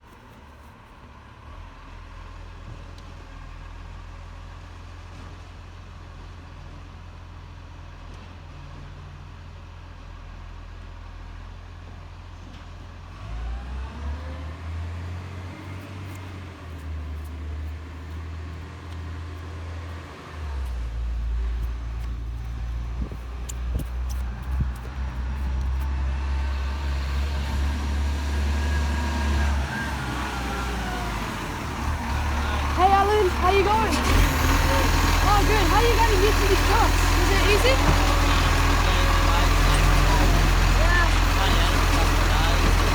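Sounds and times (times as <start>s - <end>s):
garbage truck engine rumble: 10.3s - 42.9s.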